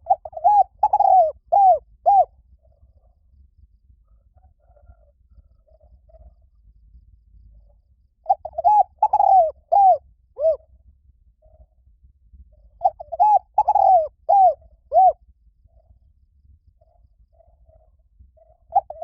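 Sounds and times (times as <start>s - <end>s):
dove cooing: 0.0s - 2.4s, 8.2s - 10.6s, 12.8s - 15.2s, 18.4s - 19.0s.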